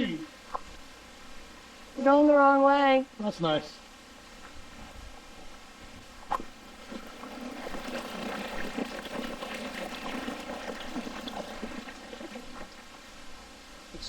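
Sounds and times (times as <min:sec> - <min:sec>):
water trickling over rocks: 0:06.2 - 0:13.5.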